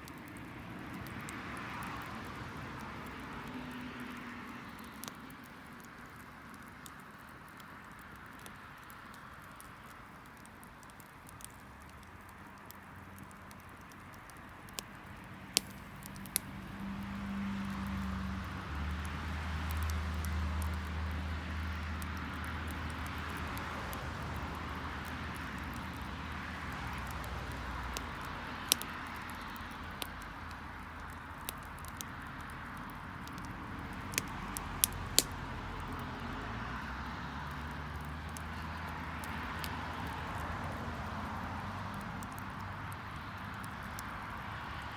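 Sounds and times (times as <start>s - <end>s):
fire popping: 0.0s - 44.9s
wood fire crackling: 0.0s - 44.9s
vehicle engine passing: 16.0s - 22.2s.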